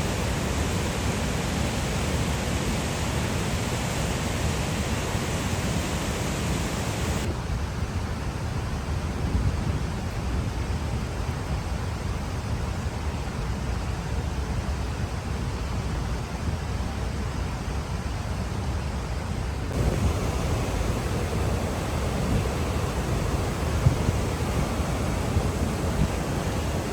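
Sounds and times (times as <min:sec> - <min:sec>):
rushing water roar: 0:00.0 - 0:07.8, 0:19.7 - 0:26.9.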